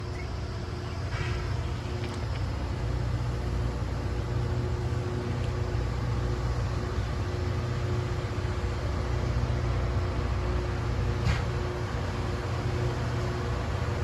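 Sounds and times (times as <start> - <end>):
diesel engines rumbling: 0.0 - 14.0
faint hum: 0.0 - 14.0.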